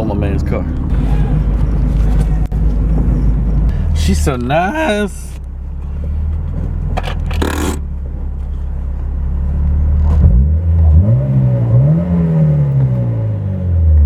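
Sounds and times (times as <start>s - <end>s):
car engine revving: 7.0s - 7.9s.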